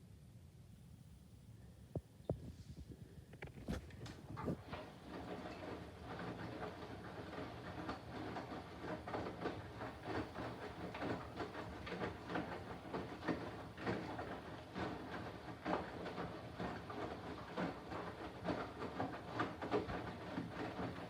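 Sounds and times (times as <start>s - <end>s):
washing machine motor hum: 2.2s - 21.0s
laundry sloshing in washing machine: 3.6s - 21.0s.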